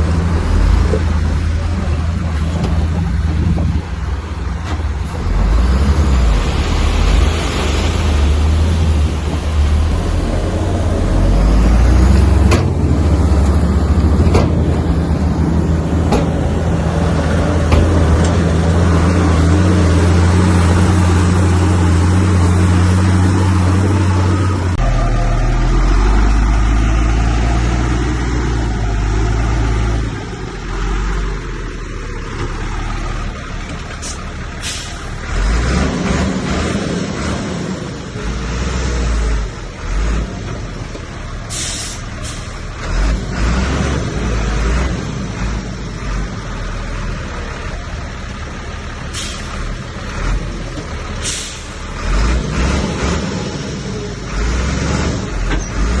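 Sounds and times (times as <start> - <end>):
diesel earthmoving machinery running: 0.0 - 56.0
air hiss bursts: 41.5 - 42.5.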